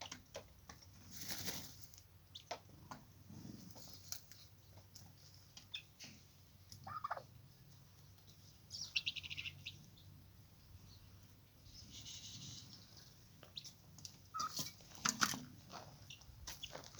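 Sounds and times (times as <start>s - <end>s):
poultry chirps: 1.1s - 2.6s, 3.8s - 14.8s, 15.9s - 16.9s
faint poultry calls: 5.6s - 14.7s.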